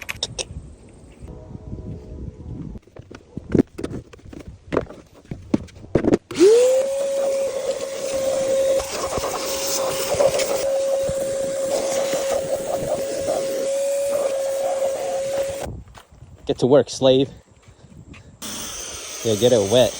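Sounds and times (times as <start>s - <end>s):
pressure washer motor whine: 6.3s - 15.7s, 18.4s - 19.9s
spraying water hiss: 7.4s - 15.7s.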